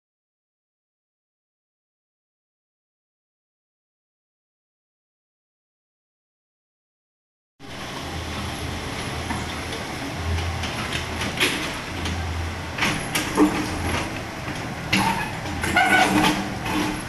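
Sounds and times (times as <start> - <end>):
excavator diesel drone: 7.6 - 17.0
metallic knocks and clanks: 12.8 - 17.0.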